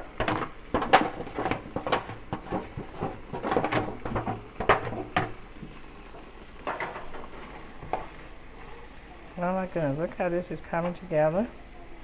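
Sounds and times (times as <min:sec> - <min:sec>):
peppers clattering into a pan: 0:00.0 - 0:08.6.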